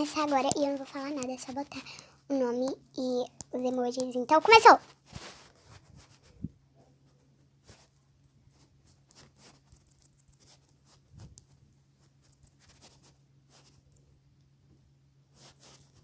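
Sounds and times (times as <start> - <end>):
fingertips tapping touchscreen: 0.0 - 4.8.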